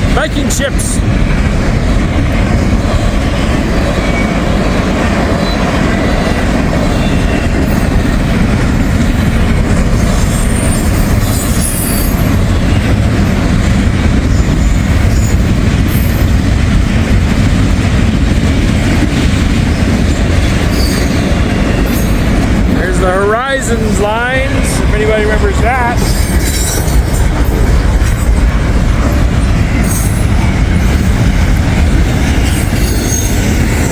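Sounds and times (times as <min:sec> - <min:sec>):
freight train wheels rumbling on rails: 0:00.0 - 0:33.9
train wheel squeals: 0:03.8 - 0:04.6, 0:05.3 - 0:08.0, 0:08.8 - 0:13.0, 0:14.3 - 0:16.3, 0:19.6 - 0:22.3, 0:29.2 - 0:31.1, 0:32.4 - 0:33.9.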